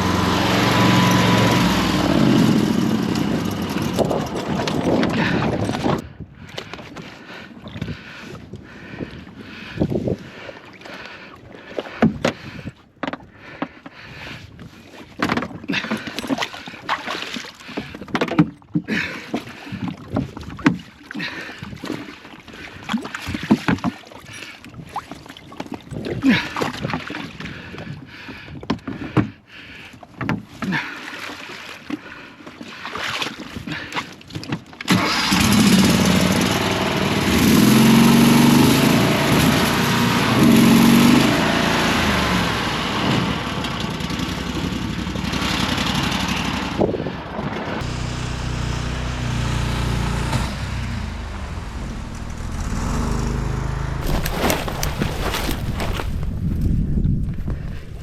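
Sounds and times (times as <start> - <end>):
boat motor running: 0.0 - 14.2, 33.8 - 57.8
boat splashing through water: 0.0 - 58.0.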